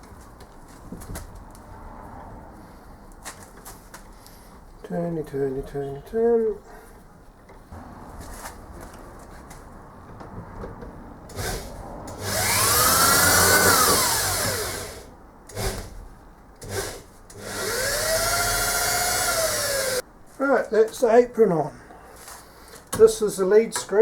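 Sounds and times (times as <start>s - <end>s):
power drill whine: 11.3s - 15.9s, 16.6s - 20.0s.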